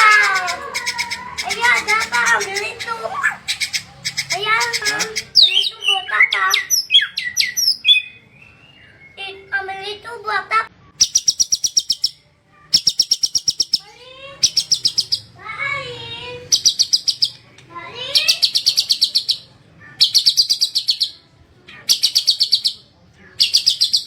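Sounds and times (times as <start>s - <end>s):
bird rattling trills: 0.0s - 5.6s.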